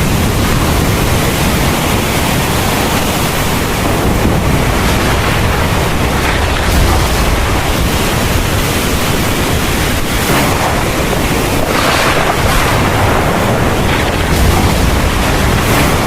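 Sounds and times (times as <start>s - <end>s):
deep continuous rumble: 0.0s - 16.0s
heavy rain falling: 0.0s - 16.0s
wind gusts: 0.0s - 16.0s.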